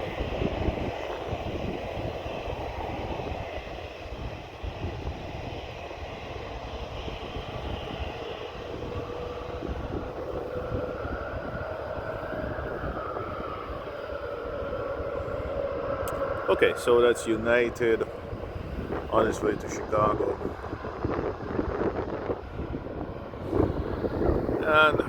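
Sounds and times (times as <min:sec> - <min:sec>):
jet airliner taking off: 0:00.0 - 0:25.0.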